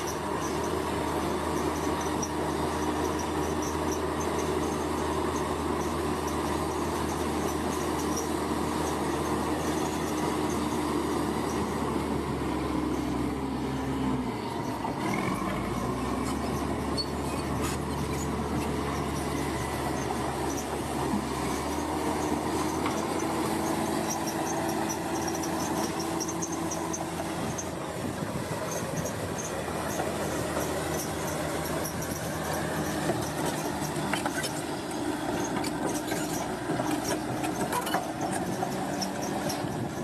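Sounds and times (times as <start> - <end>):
diesel engine running under load: 0.0 - 40.0.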